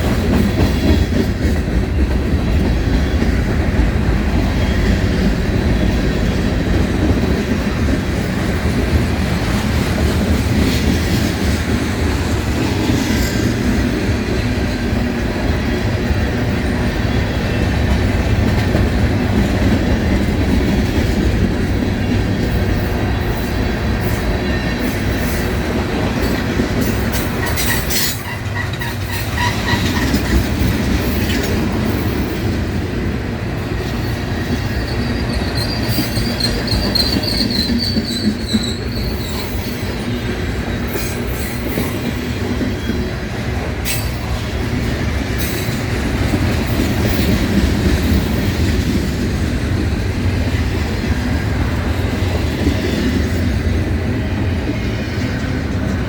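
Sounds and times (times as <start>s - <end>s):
clickety-clack over rail joints: 0.0s - 56.0s
train wheels rumbling on rails: 0.0s - 56.0s
wheel squeal: 34.7s - 39.8s.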